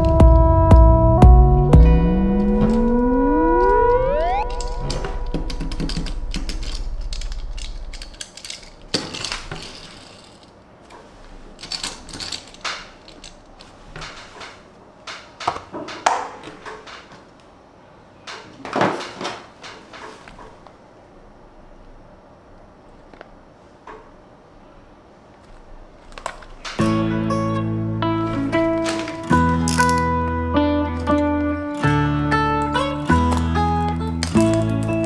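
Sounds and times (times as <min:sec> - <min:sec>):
low steady sound: 0:00.0 - 0:08.2
toy car and packaging handled: 0:04.5 - 0:17.2, 0:25.4 - 0:26.9, 0:28.2 - 0:30.3, 0:30.9 - 0:35.0.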